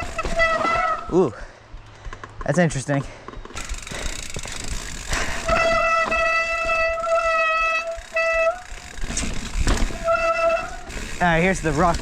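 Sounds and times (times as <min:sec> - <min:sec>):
bicycle freehub buzzing: 0:00.0 - 0:01.0, 0:03.5 - 0:12.0
tyre and trail noise: 0:00.0 - 0:12.0.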